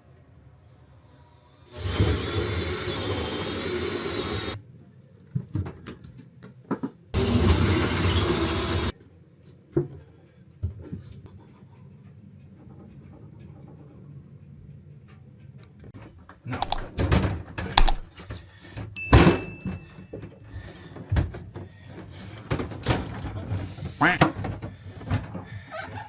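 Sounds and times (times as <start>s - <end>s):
knocks and clicks: 16.6s - 16.9s, 17.8s - 18.1s.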